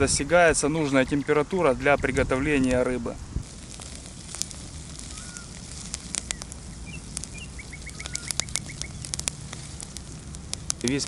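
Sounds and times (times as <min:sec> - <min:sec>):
campfire crackling and popping: 0:00.0 - 0:11.0
small birds chirping: 0:03.4 - 0:11.0.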